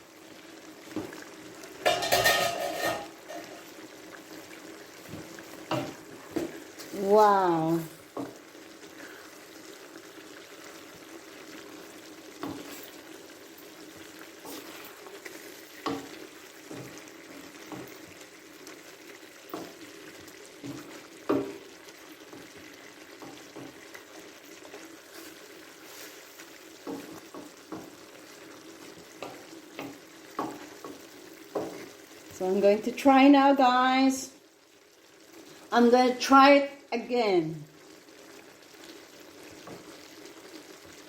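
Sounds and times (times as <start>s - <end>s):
chicken sizzling in a pan: 0.0s - 41.0s
utensil knocking against pan: 1.8s - 3.4s.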